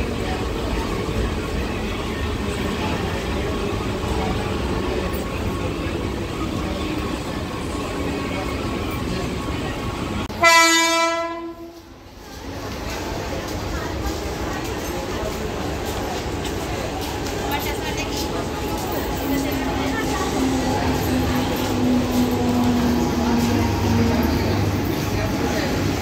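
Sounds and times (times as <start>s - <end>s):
train rolling past: 0.0s - 26.0s
train horn blast: 10.3s - 11.9s.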